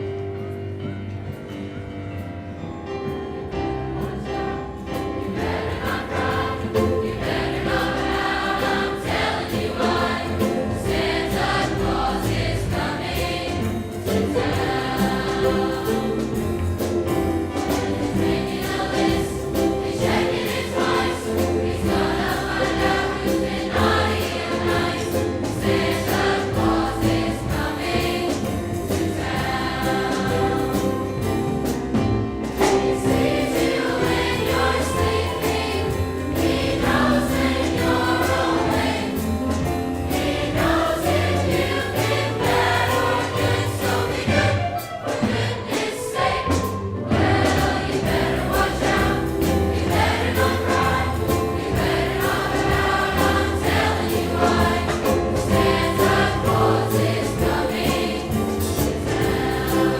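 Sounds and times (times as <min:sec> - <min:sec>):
choir singing: 0:03.5 - 0:59.9.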